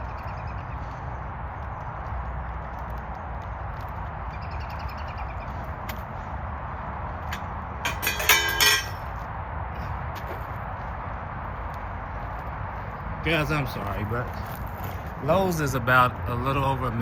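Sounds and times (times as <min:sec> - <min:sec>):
steady background noise: 0:00.0 - 0:17.0
metal parts clinking: 0:07.3 - 0:09.0.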